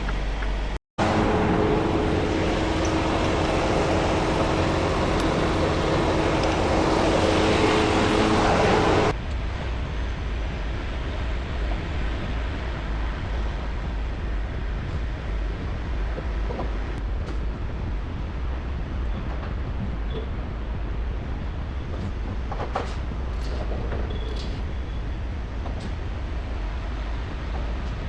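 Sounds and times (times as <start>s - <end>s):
truck diesel engine running: 0.0s - 9.2s.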